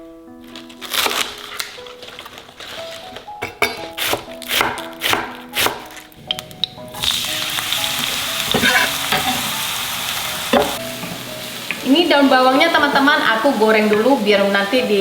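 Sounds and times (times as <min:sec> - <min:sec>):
background music: 0:00.0 - 0:15.0
onions sizzling in hot oil: 0:05.6 - 0:15.0.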